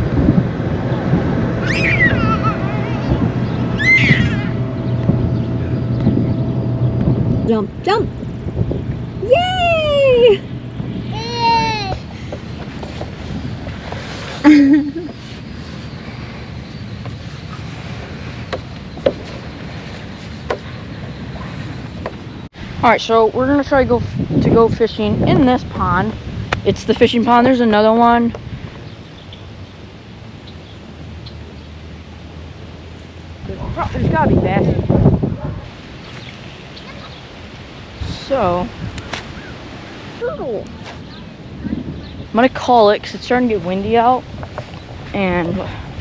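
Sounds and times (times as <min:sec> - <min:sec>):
wind buffeting microphone: 0:00.0 - 0:46.0
child squealing: 0:01.6 - 0:04.6, 0:11.1 - 0:12.0.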